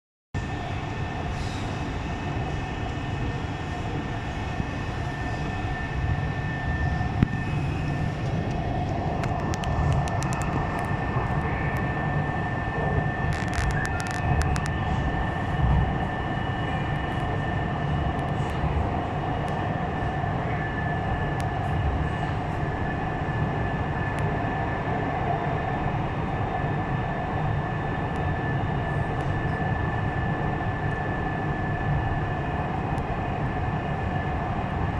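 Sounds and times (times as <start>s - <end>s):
high whine: 0.4s - 24.4s
train wheels rumbling on track: 0.4s - 34.9s.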